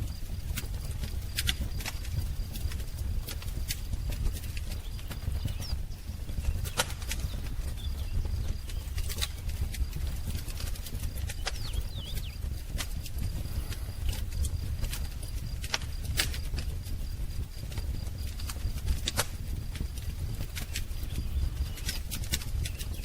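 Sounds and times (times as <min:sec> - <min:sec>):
wood fire crackling: 0:00.0 - 0:23.0
faint bird chirps: 0:04.4 - 0:10.4, 0:11.1 - 0:12.6, 0:20.6 - 0:23.0.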